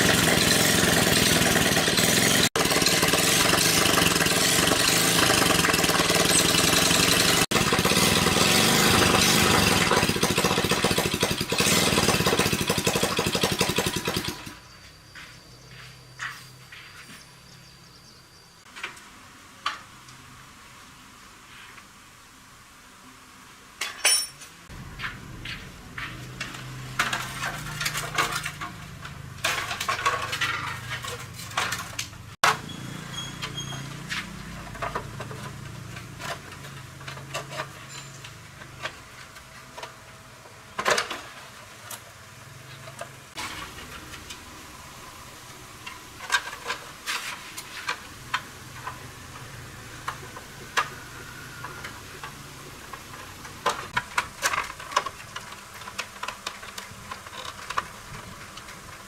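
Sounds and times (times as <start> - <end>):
metal tools clinking and tapping: 23.8 - 24.6, 33.2 - 39.0.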